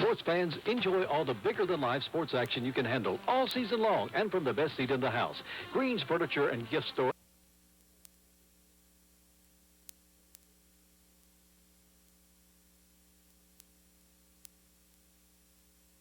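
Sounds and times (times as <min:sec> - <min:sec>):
faint electrical hum: 0:00.0 - 0:16.0
light hiss: 0:00.0 - 0:16.0
faint clicks: 0:09.8 - 0:10.6.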